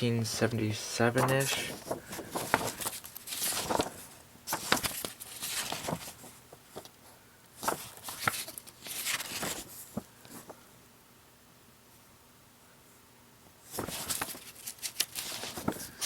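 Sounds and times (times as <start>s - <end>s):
paper pages rustling: 0.4s - 7.0s, 7.6s - 10.6s, 13.7s - 16.0s.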